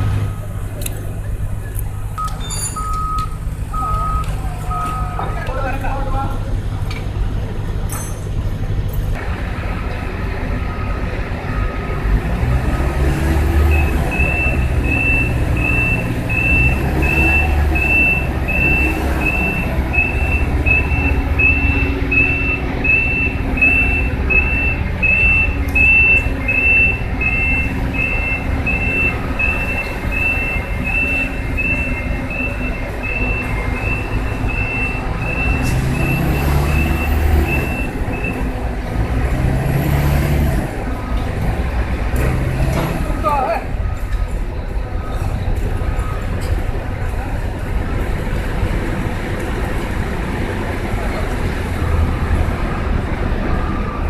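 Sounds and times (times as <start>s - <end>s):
diesel engine running: 0.0s - 54.0s
high warning beeps: 2.1s - 5.5s, 13.7s - 38.5s.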